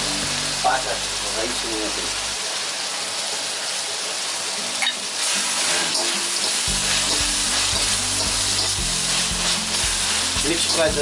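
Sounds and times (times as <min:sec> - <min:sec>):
food sizzling in a wok: 0:00.0 - 0:11.0
metal spatula stirring: 0:05.7 - 0:10.9.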